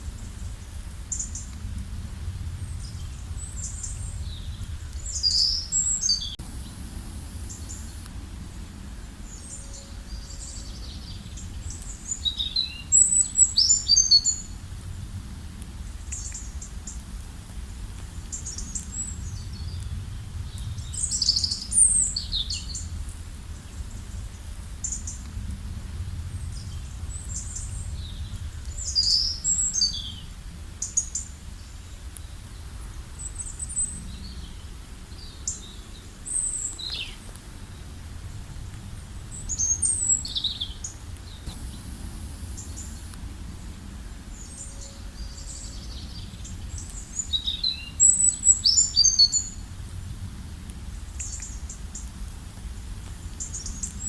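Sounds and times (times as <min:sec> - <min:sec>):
steady low rumble: 0:00.0 - 0:54.0
small birds chirping: 0:02.6 - 0:14.6, 0:18.2 - 0:25.3, 0:26.1 - 0:49.6.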